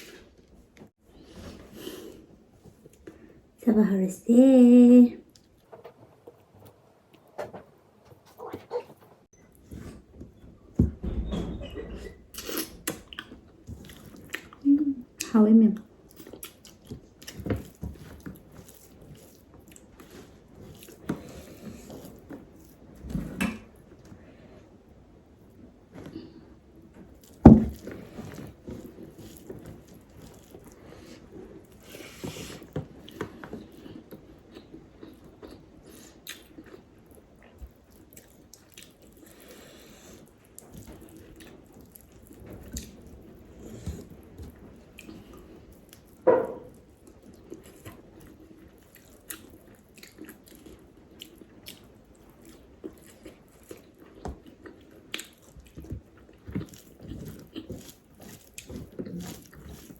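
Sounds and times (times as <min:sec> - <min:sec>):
chewing mouth sounds: 0:33.0 - 0:59.9.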